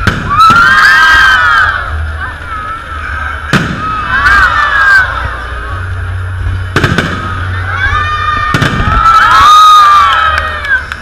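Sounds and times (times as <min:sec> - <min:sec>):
fireworks bursting with bangs: 0:00.0 - 0:00.5, 0:03.4 - 0:04.0, 0:06.7 - 0:07.5, 0:08.4 - 0:09.3
crowd shouting and cheering: 0:00.0 - 0:11.0.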